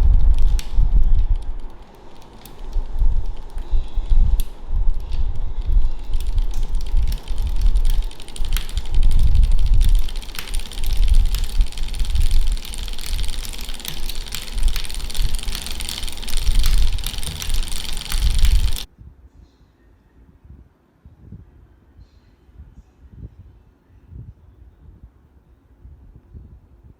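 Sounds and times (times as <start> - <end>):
bicycle drivetrain clicking: 0.0 - 18.9.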